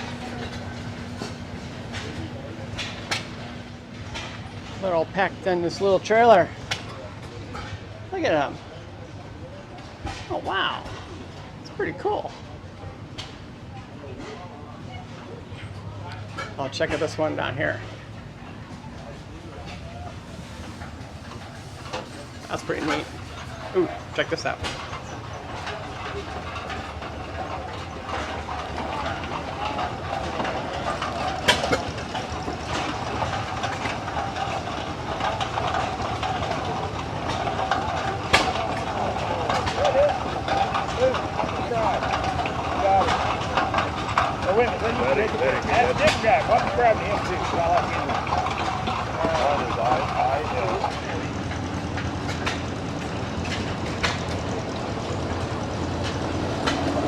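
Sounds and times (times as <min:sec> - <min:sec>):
engine running steadily: 0:00.0 - 0:57.0
machinery rumbling: 0:00.0 - 0:57.0
sharp clacks: 0:20.5 - 0:57.0.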